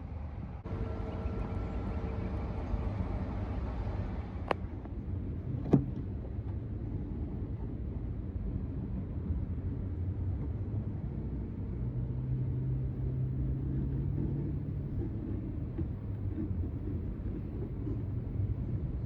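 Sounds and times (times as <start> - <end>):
low steady hum: 0.0 - 10.5
vehicle engine rumble: 0.0 - 19.0.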